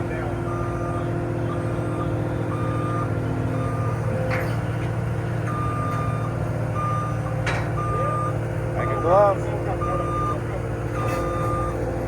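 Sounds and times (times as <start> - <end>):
diesel engine running: 0.0 - 12.0
backup alarm beeping: 0.5 - 4.1, 5.5 - 11.9.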